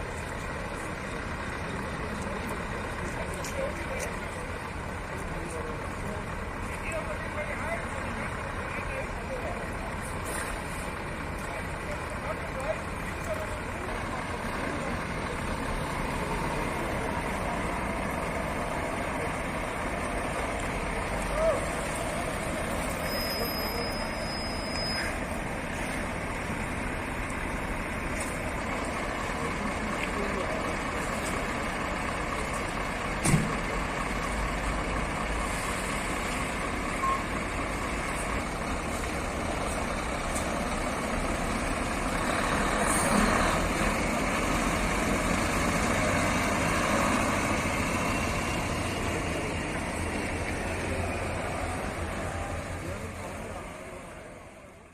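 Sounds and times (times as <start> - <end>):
truck diesel engine running: 0.0 - 54.9
short beep: 23.0 - 25.2, 37.0 - 37.4.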